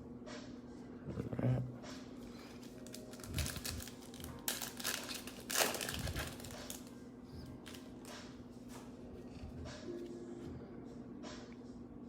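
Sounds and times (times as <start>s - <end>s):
plastic wrapper crinkling: 2.3s - 8.2s.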